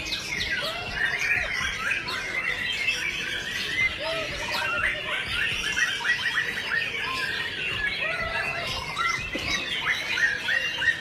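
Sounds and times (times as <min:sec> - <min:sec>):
caged songbirds singing and chirping: 0:00.0 - 0:11.0.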